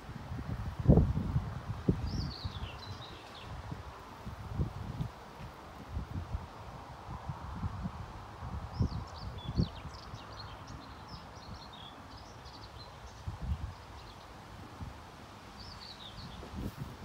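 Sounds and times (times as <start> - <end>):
small birds chirping: 2.0 - 3.6, 8.7 - 14.4, 15.6 - 17.0.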